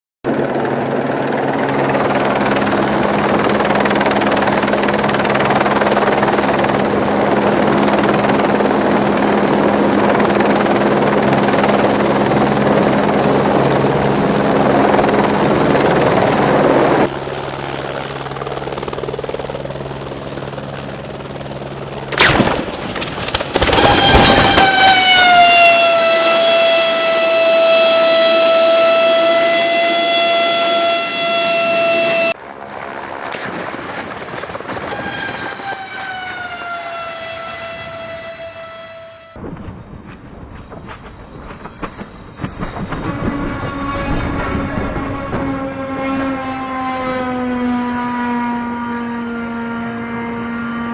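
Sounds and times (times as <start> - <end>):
aircraft engine hum: 0.3 - 50.9
sudden loud disturbance: 22.2 - 25.4
siren-like tone: 23.5 - 32.4, 34.8 - 50.9.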